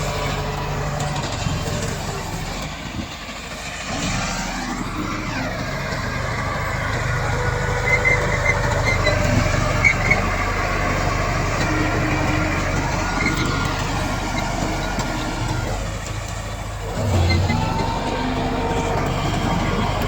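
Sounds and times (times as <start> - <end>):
bulldozer diesel engine running: 0.0 - 20.0
short high squeaks: 6.4 - 15.8.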